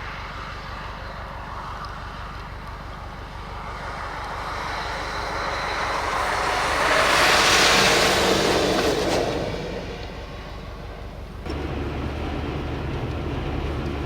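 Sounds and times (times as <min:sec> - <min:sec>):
vehicle driving past on snow: 0:00.0 - 0:14.0
steady low hum: 0:10.0 - 0:14.0.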